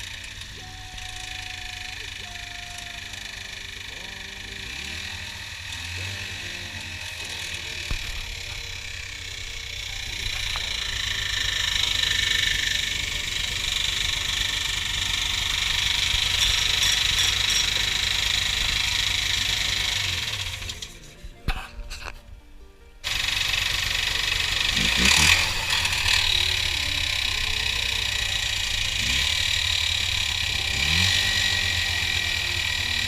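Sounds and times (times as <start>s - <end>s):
snowmobile engine whining: 0.0s - 21.5s, 23.0s - 33.0s.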